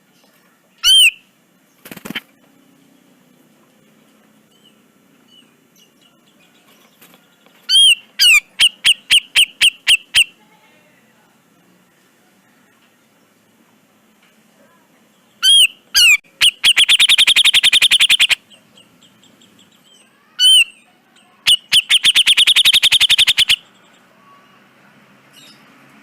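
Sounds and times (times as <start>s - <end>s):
bulbul singing trills: 15.2s - 24.6s.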